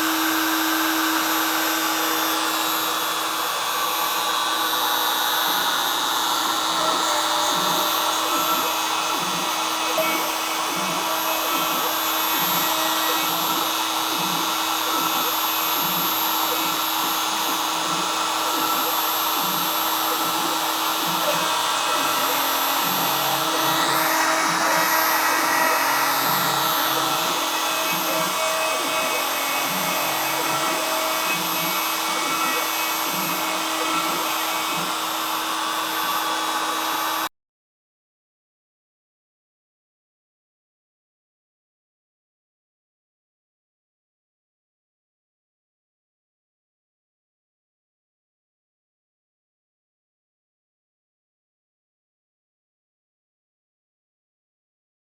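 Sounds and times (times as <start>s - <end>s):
router spindle whining: 0.0s - 37.3s.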